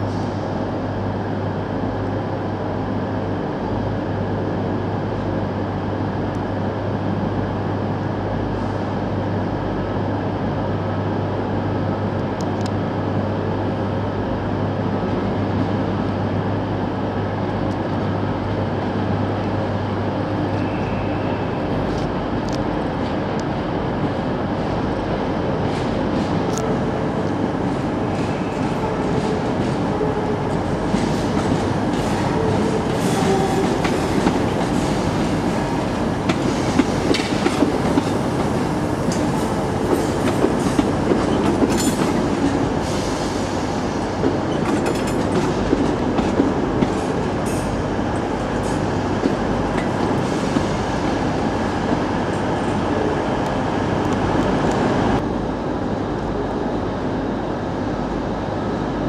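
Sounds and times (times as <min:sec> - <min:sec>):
train wheels clicking over rail joints: 0:27.6 - 0:42.8.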